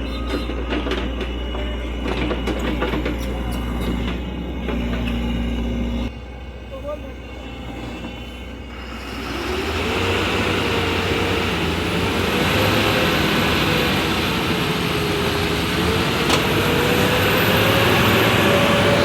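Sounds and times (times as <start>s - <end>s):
diesel engine running hard: 0.0s - 19.0s
wavering engine whine: 0.0s - 19.0s.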